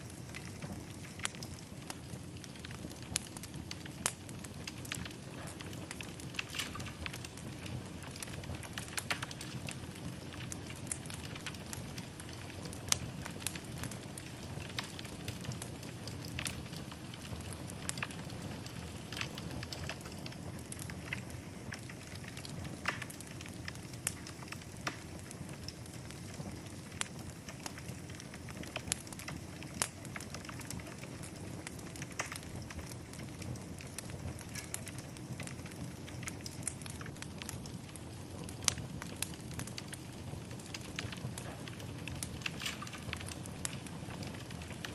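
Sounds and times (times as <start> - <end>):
fire crackling in a fireplace: 0.0 - 44.9.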